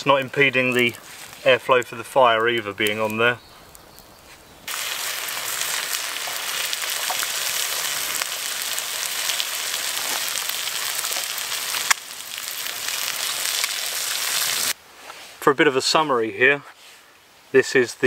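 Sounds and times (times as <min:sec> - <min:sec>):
food sizzling on a griddle: 0:04.7 - 0:14.8.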